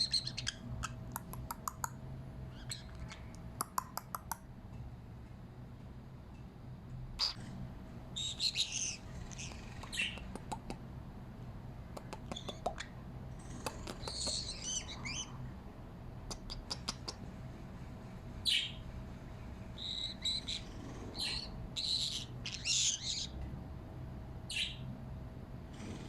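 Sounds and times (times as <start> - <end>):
parrot chirping: 0.0 - 4.3, 7.2 - 7.4, 8.1 - 10.4, 12.0 - 15.4, 18.4 - 18.8, 19.8 - 23.4, 24.5 - 24.9
sharp clicks: 1.1 - 2.0.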